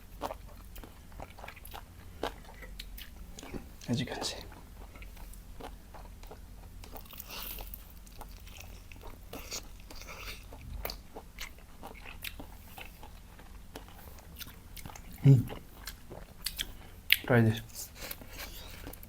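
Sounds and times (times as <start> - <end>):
person chewing crunchy food: 0.0 - 19.0.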